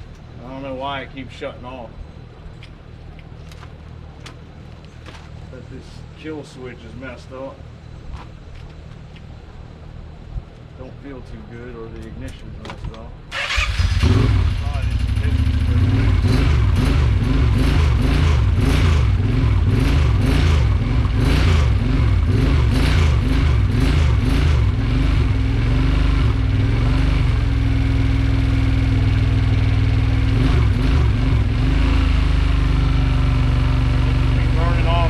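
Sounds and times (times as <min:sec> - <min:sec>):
engine running rough: 0:13.5 - 0:35.0.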